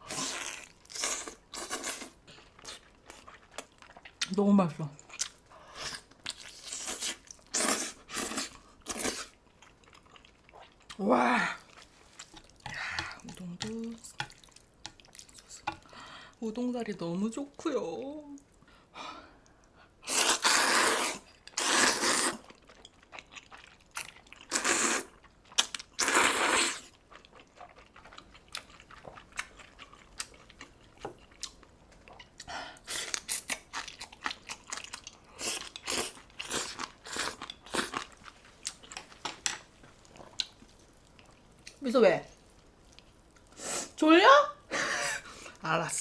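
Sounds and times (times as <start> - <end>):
wet chewing: 11.6 - 16.0, 19.4 - 43.6
noodle slurping: 20.0 - 22.5.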